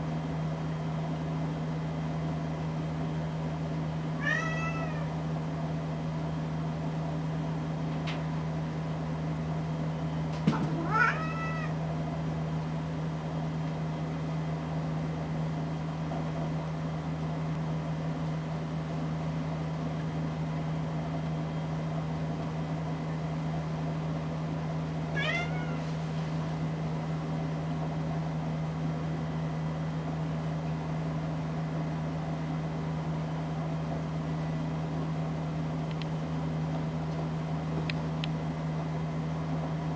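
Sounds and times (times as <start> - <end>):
ceiling fan motor humming: 0.0 - 39.9
cat meowing: 4.2 - 5.1, 10.8 - 11.8, 25.2 - 26.0.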